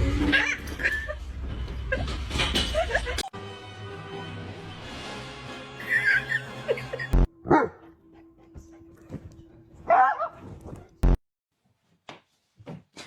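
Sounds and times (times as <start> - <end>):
dog barking: 7.5 - 7.8, 9.8 - 10.5.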